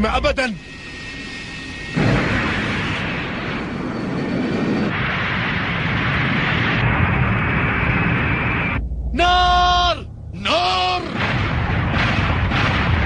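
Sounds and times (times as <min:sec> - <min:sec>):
cartoon explosions and cannon fire: 0:02.0 - 0:08.8, 0:10.8 - 0:13.0.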